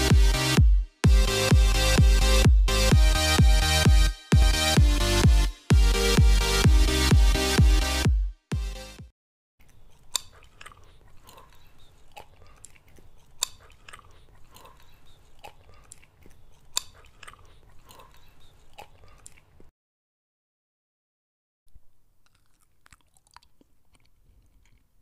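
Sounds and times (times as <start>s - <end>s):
close chewing with wet crunches: 9.6s - 19.7s, 22.2s - 25.0s.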